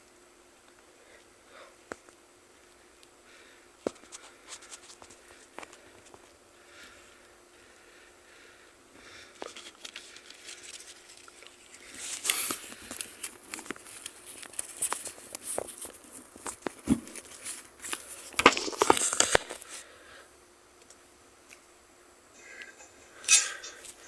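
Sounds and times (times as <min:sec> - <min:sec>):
neoprene cover rustling and scraping: 0:09.5 - 0:19.8.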